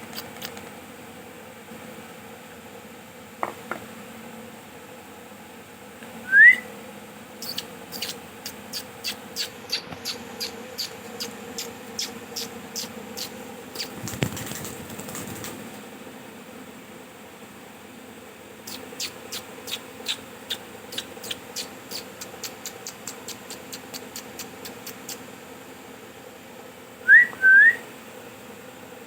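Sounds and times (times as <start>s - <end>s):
parrot whistle: 6.2s - 6.7s, 7.4s - 10.9s, 27.0s - 27.8s
parrot chirping: 7.4s - 14.0s, 18.7s - 25.2s.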